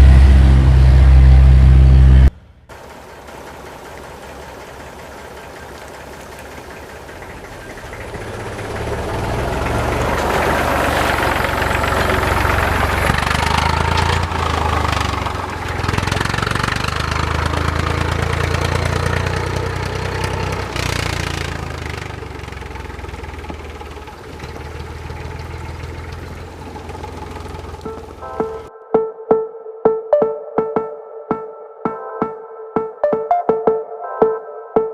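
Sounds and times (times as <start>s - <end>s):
engine rumbling: 0.0s - 28.7s.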